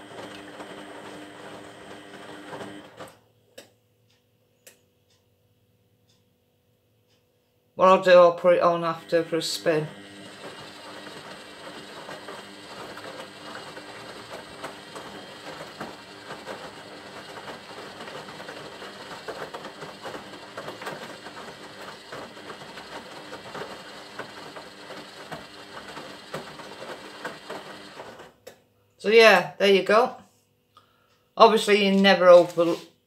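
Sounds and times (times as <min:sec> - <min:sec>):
washing machine humming: 0:00.0 - 0:03.2, 0:08.7 - 0:28.5.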